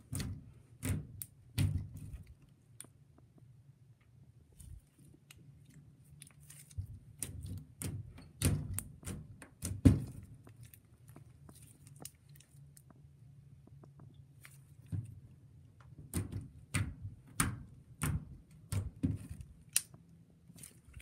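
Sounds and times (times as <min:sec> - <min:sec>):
slime squishing with sticky crackles: 0:00.0 - 0:21.0.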